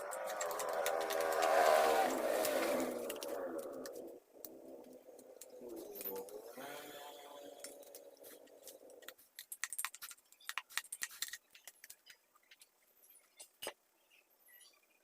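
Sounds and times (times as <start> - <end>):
low wavering hum: 0.0 - 9.1.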